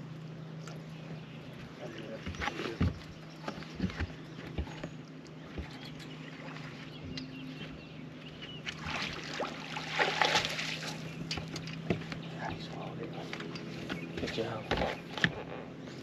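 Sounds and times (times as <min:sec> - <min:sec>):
steady low hum: 0:00.0 - 0:16.0
knocks on boat: 0:02.1 - 0:05.8, 0:11.2 - 0:12.9, 0:13.8 - 0:15.4
fish splashing in water: 0:08.7 - 0:11.9.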